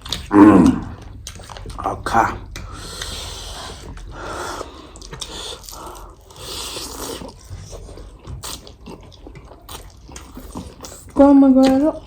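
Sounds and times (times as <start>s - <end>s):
food crunching: 3.8s - 12.0s
person biting and chewing food: 4.6s - 11.1s.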